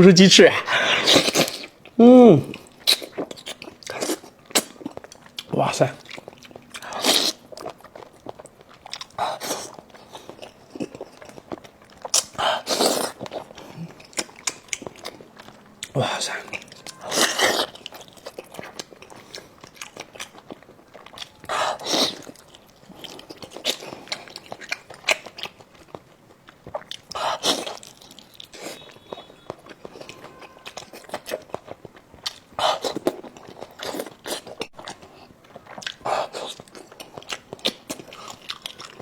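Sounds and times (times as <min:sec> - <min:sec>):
wet chewing: 0:00.7 - 0:39.0
bites and slurps: 0:00.8 - 0:26.0, 0:26.6 - 0:39.0.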